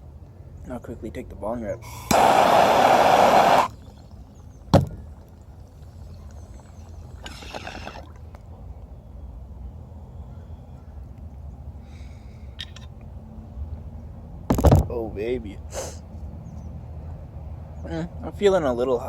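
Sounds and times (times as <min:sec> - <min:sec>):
breathy rush: 0:01.8 - 0:03.8
bong water bubbling: 0:01.8 - 0:08.5.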